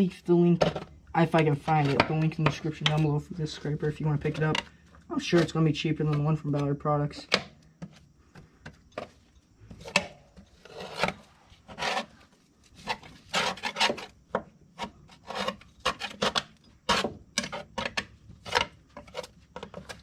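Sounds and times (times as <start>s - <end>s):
scraper scraping mower deck: 9.8s - 14.2s, 14.8s - 20.0s.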